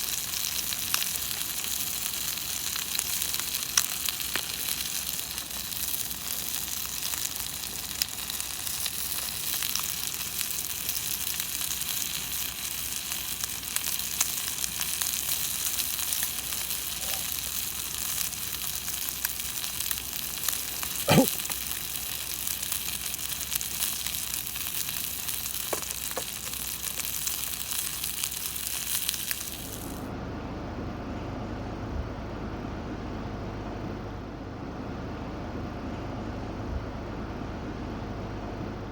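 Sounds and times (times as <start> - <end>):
food sizzling in a hot pan: 0.0 - 30.1
low steady rumble: 0.0 - 38.9.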